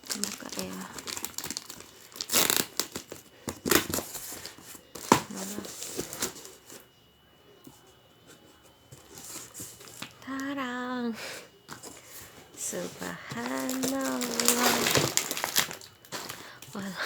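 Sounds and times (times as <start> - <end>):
packaging torn and crinkled: 0.0 - 4.1, 13.4 - 16.4.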